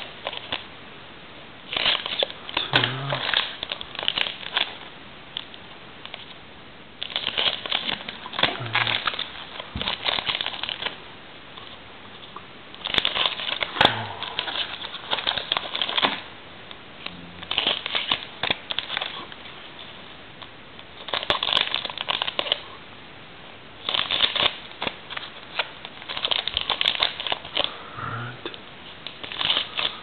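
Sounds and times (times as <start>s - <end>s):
card pack wrappers crinkling: 0.0s - 0.6s, 1.7s - 4.8s, 7.0s - 11.0s, 12.8s - 16.3s, 17.4s - 22.7s, 23.8s - 27.7s, 29.0s - 30.0s.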